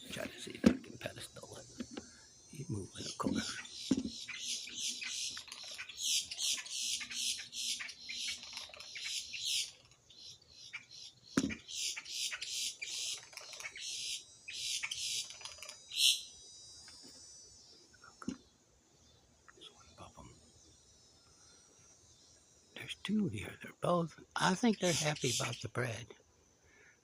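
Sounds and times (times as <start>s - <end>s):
birds squeaky calls: 0.0s - 17.2s, 23.8s - 26.0s.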